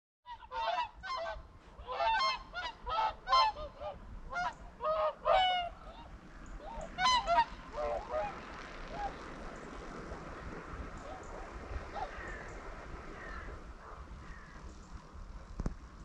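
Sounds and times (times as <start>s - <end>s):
swans honking in flight: 0.3s - 9.5s
wind noise: 0.3s - 16.0s.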